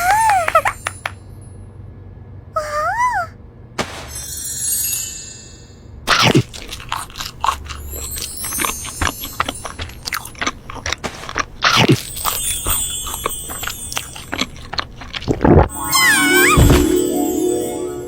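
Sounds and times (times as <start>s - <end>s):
crunchy food being chewed: 6.1s - 15.7s.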